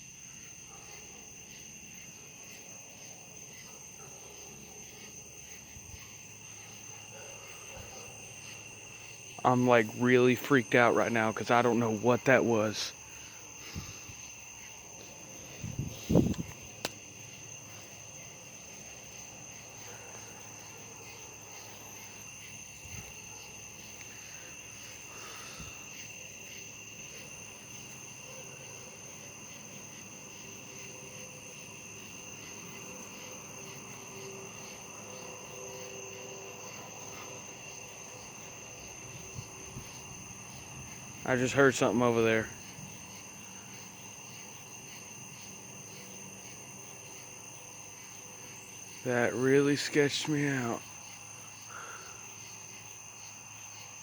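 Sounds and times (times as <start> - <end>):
night insects chirring: 0.0 - 54.0.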